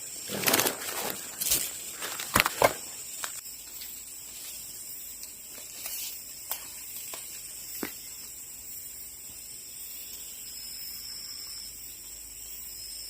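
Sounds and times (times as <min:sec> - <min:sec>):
rustling: 0:00.1 - 0:03.4.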